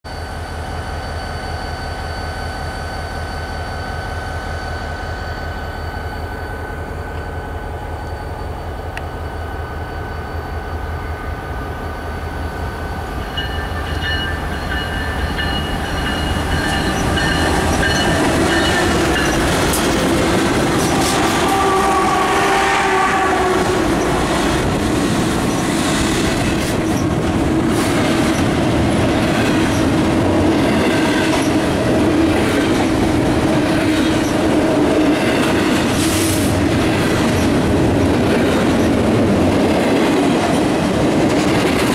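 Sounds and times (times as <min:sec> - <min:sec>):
diesel locomotive engines passing: 0:00.1 - 0:41.9
train wheels clattering: 0:13.0 - 0:41.9.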